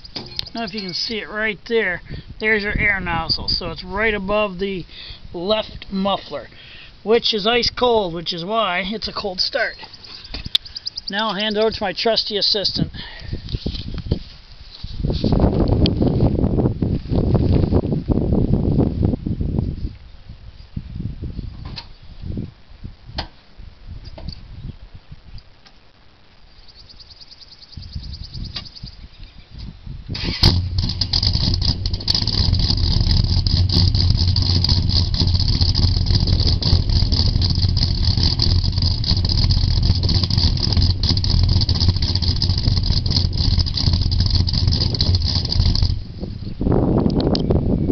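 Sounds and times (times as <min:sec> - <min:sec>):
engine cranking: 0:30.2 - 0:46.1
car engine running loudly: 0:30.4 - 0:46.2.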